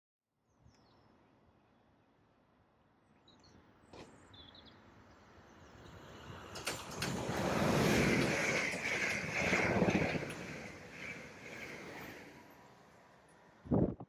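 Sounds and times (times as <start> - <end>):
small birds chirping: 3.0 - 6.1
electric train rumble: 5.3 - 13.8
train wheel clicks: 6.4 - 12.6.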